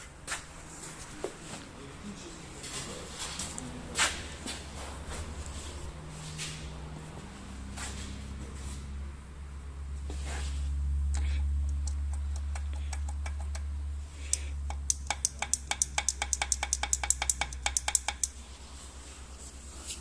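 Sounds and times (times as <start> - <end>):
diesel engine humming: 0.0 - 20.0
engine knocking: 14.8 - 18.3.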